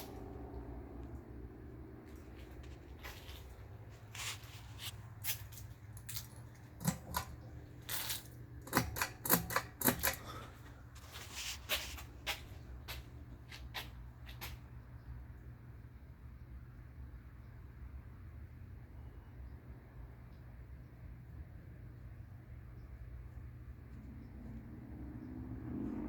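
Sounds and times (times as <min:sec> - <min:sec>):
fan motor hum: 0:00.0 - 0:15.6.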